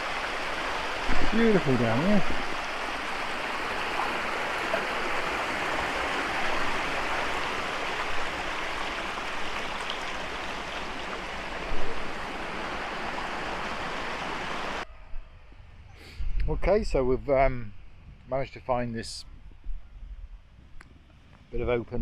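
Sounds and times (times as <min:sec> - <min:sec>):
waterfall rushing: 0:00.0 - 0:14.8.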